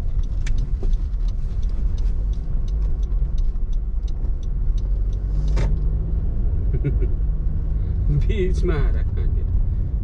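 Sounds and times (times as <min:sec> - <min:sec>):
faint irregular ticks: 0:00.0 - 0:05.6
car tyres and engine rumble: 0:00.0 - 0:10.0.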